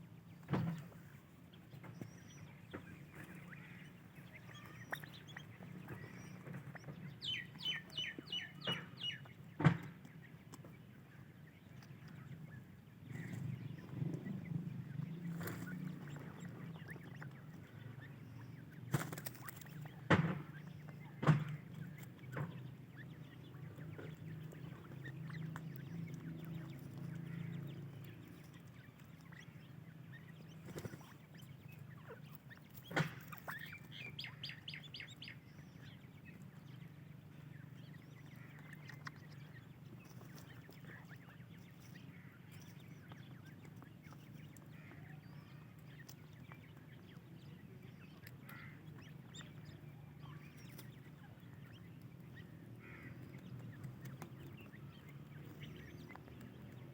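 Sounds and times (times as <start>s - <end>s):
chicks chirping faintly: 0.1s - 56.9s.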